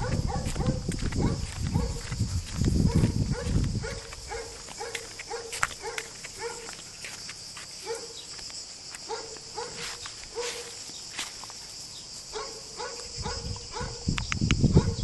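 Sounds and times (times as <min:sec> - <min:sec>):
insects chirring: 0:00.0 - 0:15.0
dog yipping: 0:02.9 - 0:06.7.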